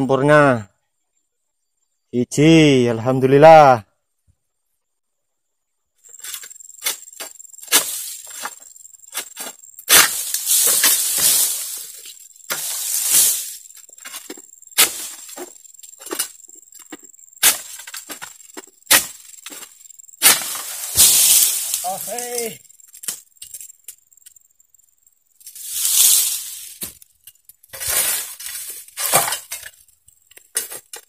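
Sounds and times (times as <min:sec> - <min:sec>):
blade cracking frond stalks: 0:07.6 - 0:08.6, 0:09.2 - 0:16.4, 0:18.9 - 0:23.6, 0:25.5 - 0:27.0
fronds crashing through leaves: 0:07.7 - 0:08.6, 0:09.9 - 0:16.2, 0:19.0 - 0:22.6, 0:25.5 - 0:27.0, 0:27.7 - 0:29.5.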